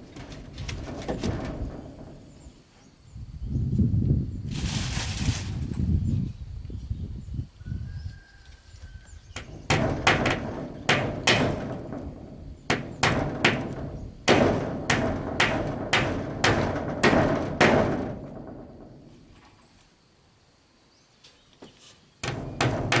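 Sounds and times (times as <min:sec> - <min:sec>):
hand tool striking wood: 0:09.4 - 0:19.3, 0:22.2 - 0:23.0.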